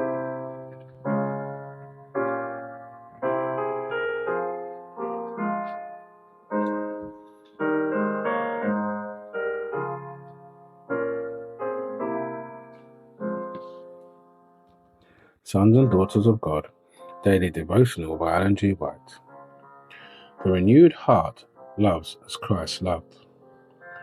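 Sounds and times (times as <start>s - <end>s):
slow solo piano: 0.0s - 15.3s, 21.4s - 24.0s.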